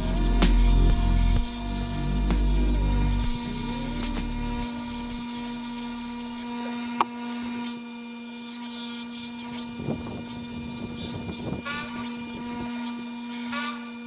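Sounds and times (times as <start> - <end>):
stone grinding hiss: 0.0 - 6.4, 7.8 - 14.0
grinding wheel motor hum: 0.0 - 7.7.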